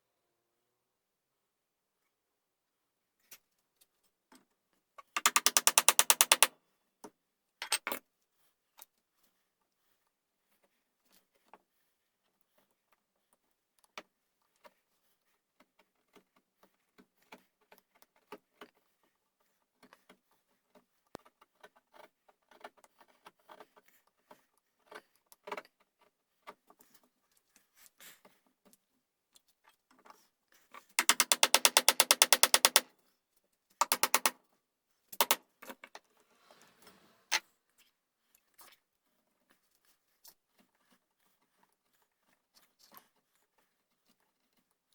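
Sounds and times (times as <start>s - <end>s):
fast run of tool strokes: 5.2s - 6.5s, 31.0s - 32.8s
hand tools tapping and scraping wood: 5.2s - 6.5s, 31.0s - 32.8s, 33.8s - 34.4s, 35.2s - 35.4s.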